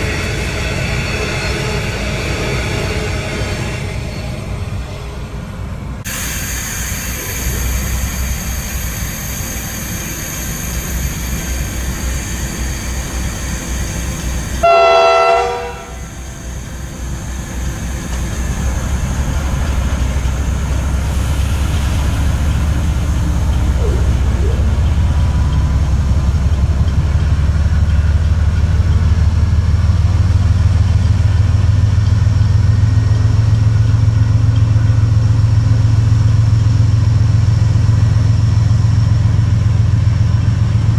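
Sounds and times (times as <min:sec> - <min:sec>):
locomotive engine rumble: 0:00.0 - 0:40.9
train horn blast: 0:14.6 - 0:16.2.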